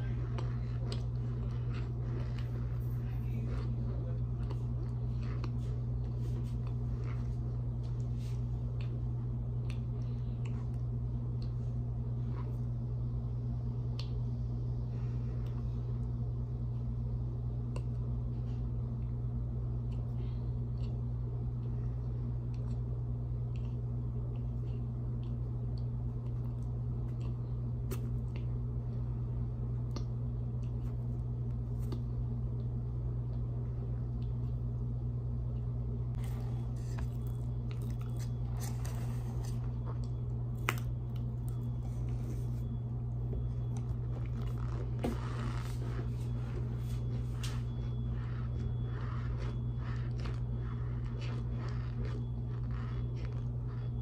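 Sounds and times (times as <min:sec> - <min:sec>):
chewing mouth sounds: 0:00.0 - 0:11.6, 0:36.1 - 0:54.0
low hum: 0:00.0 - 0:54.0.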